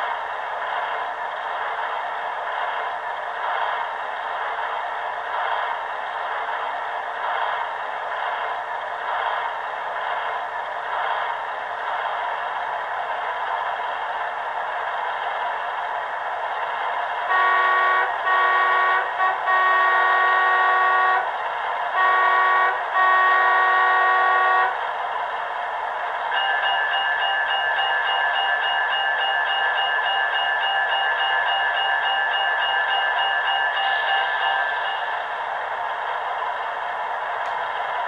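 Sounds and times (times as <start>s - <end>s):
model train diesel horn blasts: 17.3s - 21.3s, 21.9s - 24.8s.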